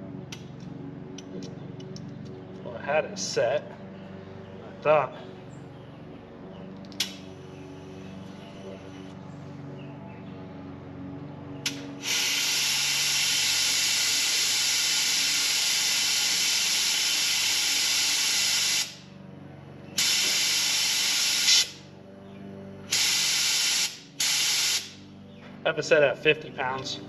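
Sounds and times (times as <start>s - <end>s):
compressed air hissing from spray gun: 12.0s - 19.0s, 20.0s - 21.8s, 22.9s - 25.0s.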